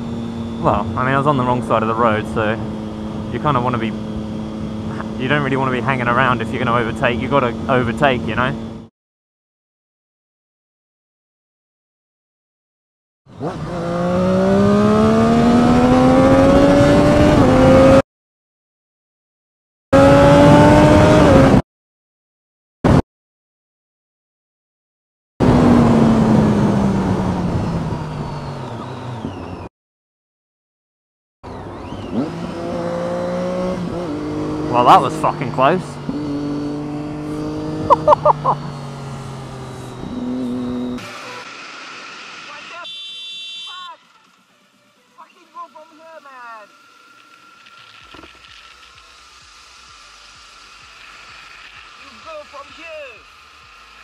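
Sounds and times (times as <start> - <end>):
motorcycle engine accelerating: 0.0 - 8.9, 13.3 - 18.0, 19.9 - 21.6, 25.4 - 29.7, 31.4 - 42.7
motorcycle engine running: 0.0 - 8.9, 31.5 - 41.4, 46.1 - 54.0
wind and road noise: 0.0 - 8.9, 13.3 - 18.0, 20.0 - 21.6, 25.4 - 29.7, 31.4 - 54.0
high-pitched chirps: 37.9 - 38.6.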